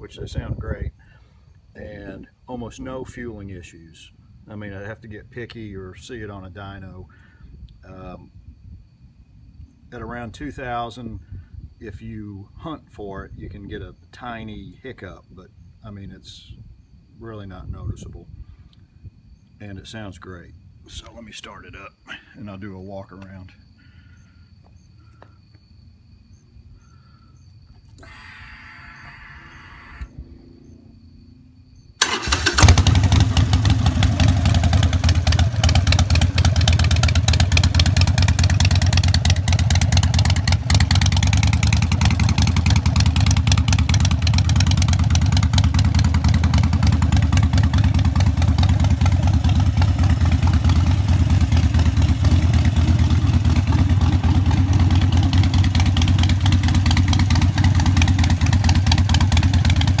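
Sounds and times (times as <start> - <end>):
motorcycle engine starting and idling: 27.7 - 31.0, 32.0 - 60.0.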